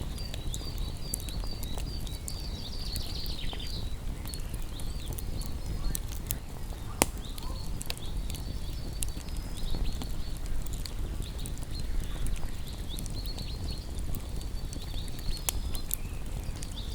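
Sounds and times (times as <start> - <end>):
campfire crackling: 0.0 - 16.9
sharp pops of fire: 0.0 - 16.9.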